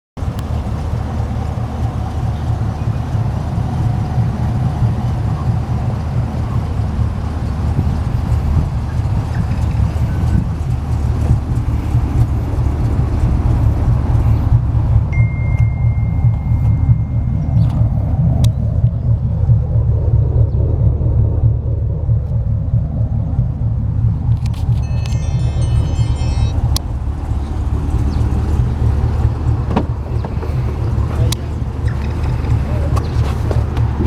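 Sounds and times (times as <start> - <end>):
car exhaust idling rumble: 0.2 - 34.0.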